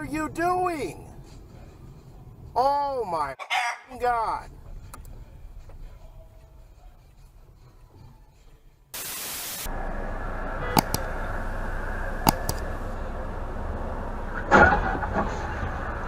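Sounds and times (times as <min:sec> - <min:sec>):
vehicle road and engine noise: 0:00.0 - 0:03.0, 0:04.4 - 0:08.9, 0:09.6 - 0:16.0
static hiss: 0:09.0 - 0:09.7
sharp clicks: 0:10.8 - 0:11.1, 0:12.3 - 0:12.7.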